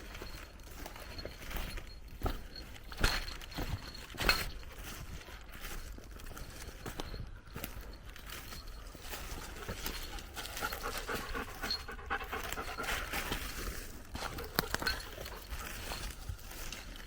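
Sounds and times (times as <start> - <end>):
dog panting: 9.4 - 16.1.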